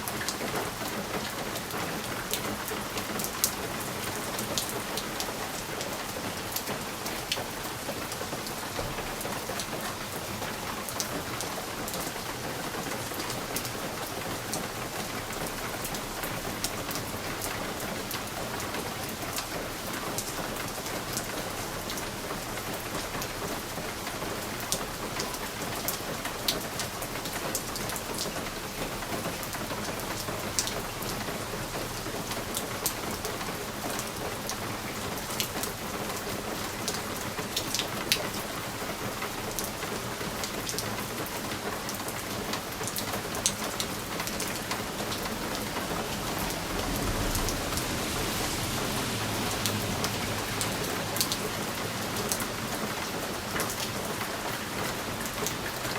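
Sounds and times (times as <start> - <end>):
rain on a window: 0.0 - 55.9.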